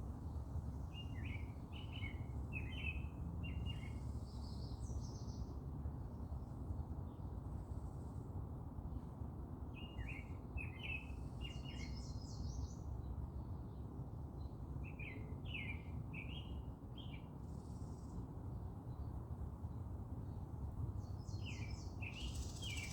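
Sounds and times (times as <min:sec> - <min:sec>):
songbird chirping: 0:21.0 - 0:22.9.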